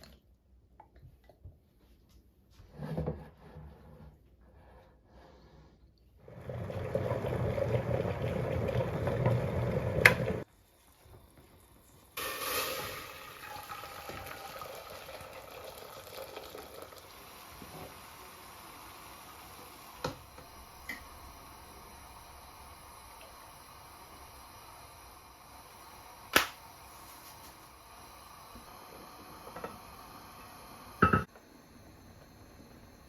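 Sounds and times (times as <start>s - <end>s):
running water in a kitchen: 6.1s - 33.0s
steady watery hiss: 10.0s - 33.0s.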